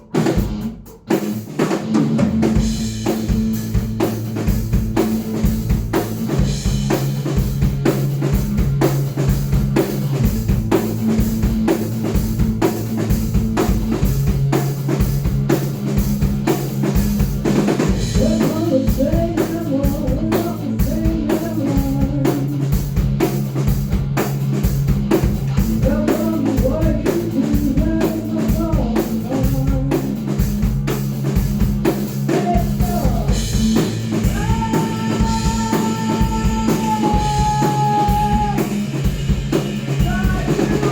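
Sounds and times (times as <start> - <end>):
bass drum: 0.0 - 40.9
metal band playing: 0.0 - 40.9
person singing: 18.2 - 22.6, 25.7 - 30.2, 34.2 - 38.8, 40.0 - 40.9.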